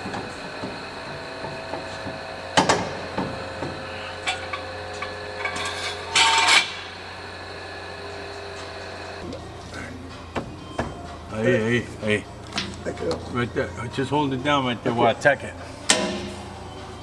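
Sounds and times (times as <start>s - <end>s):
metal parts knocking: 0.0s - 7.1s
metal scraping: 0.0s - 9.3s
steady background hum: 0.0s - 17.0s.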